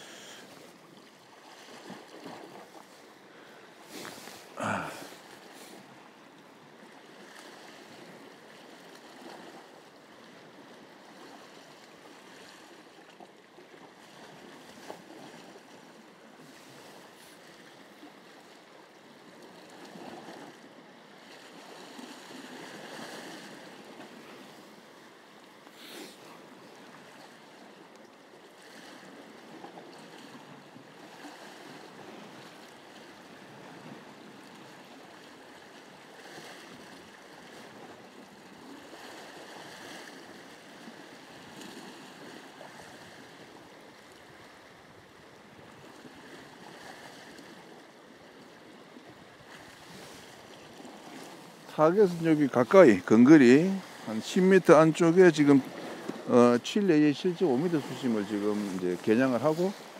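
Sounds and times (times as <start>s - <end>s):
waves washing against rocks: 3.7s - 5.9s, 49.5s - 59.9s.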